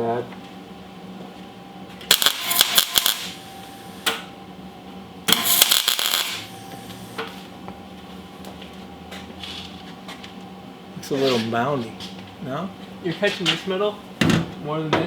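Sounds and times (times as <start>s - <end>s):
steady low hum: 0.0s - 15.0s
welder crackling: 2.1s - 4.3s, 5.3s - 7.4s
welder zap: 2.1s - 4.3s, 5.3s - 7.4s.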